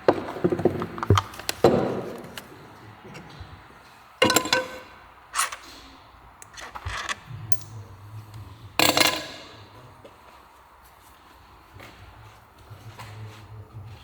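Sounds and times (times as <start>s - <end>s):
metal tools clinking and scraping: 4.2s - 8.1s.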